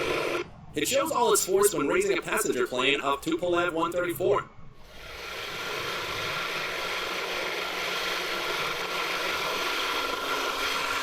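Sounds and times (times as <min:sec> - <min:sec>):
steady whine: 0:00.0 - 0:11.0
helicopter engines and rotor: 0:04.8 - 0:11.0.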